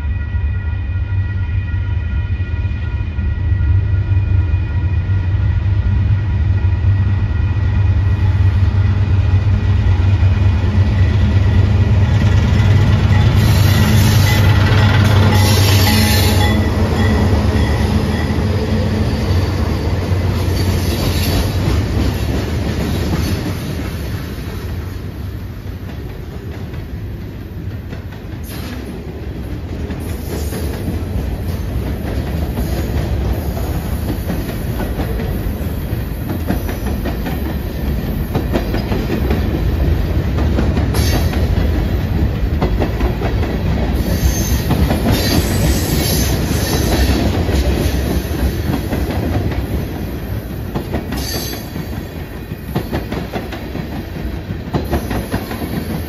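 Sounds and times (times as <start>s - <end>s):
locomotive engine droning: 0.0s - 21.7s.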